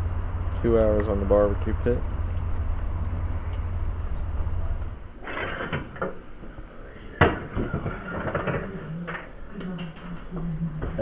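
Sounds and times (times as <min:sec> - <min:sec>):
low rumble: 0:00.0 - 0:05.2.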